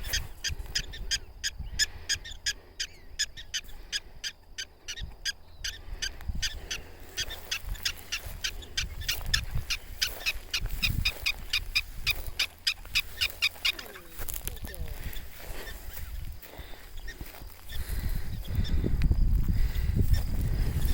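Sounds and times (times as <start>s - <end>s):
prairie dogs alarm chirps: 0.0s - 20.9s.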